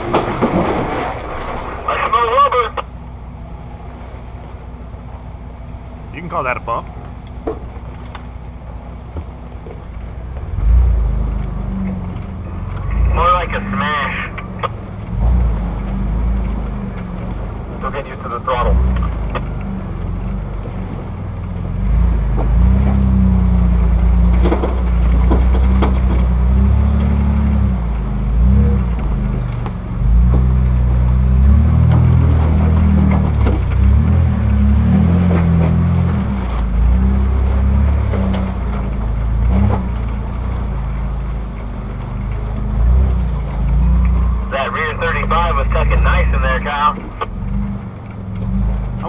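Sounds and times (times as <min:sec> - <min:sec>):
tyres and chassis knocking on rocks: 0:07.0 - 0:08.3, 0:24.0 - 0:26.6, 0:31.7 - 0:41.4
engine revving: 0:10.2 - 0:49.0.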